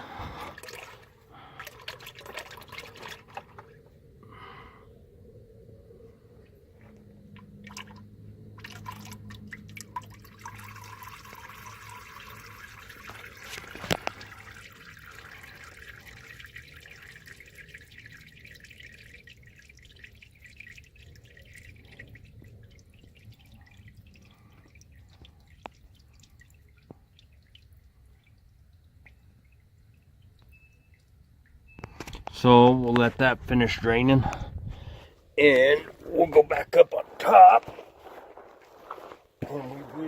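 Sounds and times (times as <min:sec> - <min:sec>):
oil draining into a pan: 0:00.0 - 0:03.9, 0:07.3 - 0:32.3.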